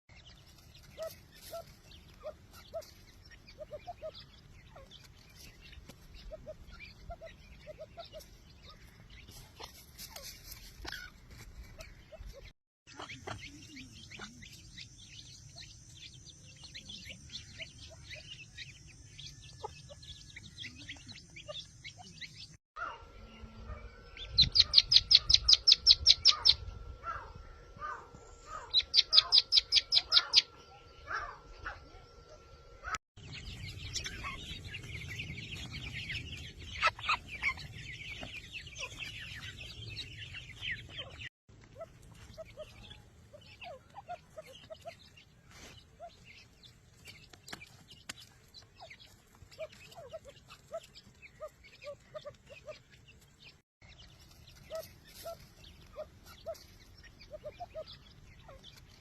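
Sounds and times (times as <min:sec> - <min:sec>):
bird chirps: 0:00.1 - 0:59.0
francolin calling: 0:22.8 - 0:32.9.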